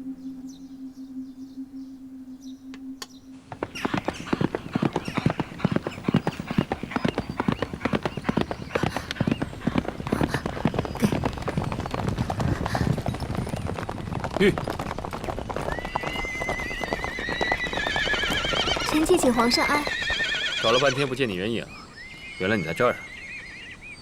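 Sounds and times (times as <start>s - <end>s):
faint low hum: 0.0s - 11.2s
horses galloping: 3.5s - 23.5s.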